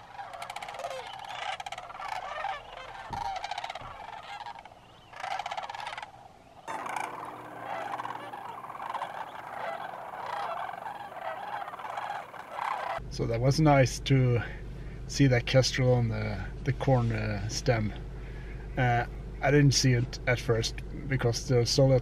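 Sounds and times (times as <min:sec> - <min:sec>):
cranes calling: 0:00.0 - 0:13.0.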